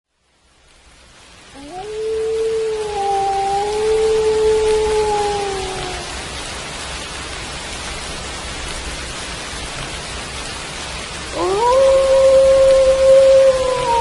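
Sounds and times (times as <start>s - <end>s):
rain falling: 0.1s - 14.0s
wolf howling: 1.5s - 6.4s, 11.3s - 14.0s.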